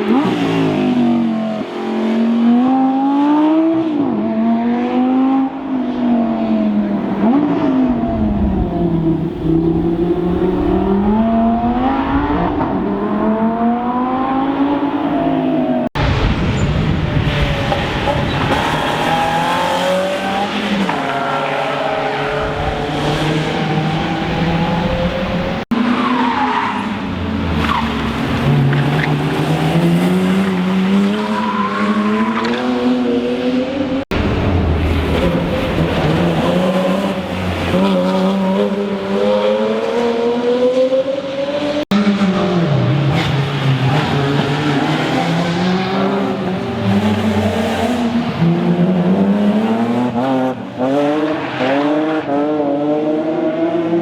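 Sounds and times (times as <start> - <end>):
rally car engines accelerating: 17.1 - 54.0.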